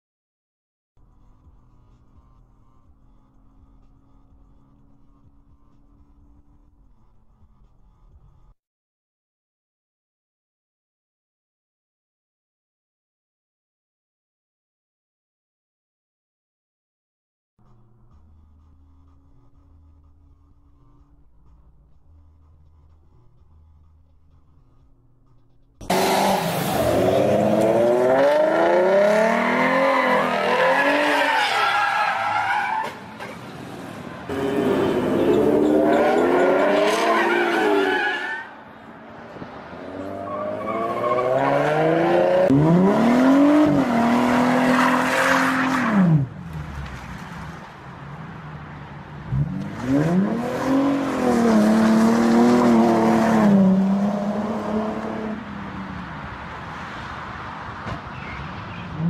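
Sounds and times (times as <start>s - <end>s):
car engine revving hard: 25.8s - 31.2s, 34.3s - 37.8s, 39.8s - 46.3s, 49.3s - 55.6s.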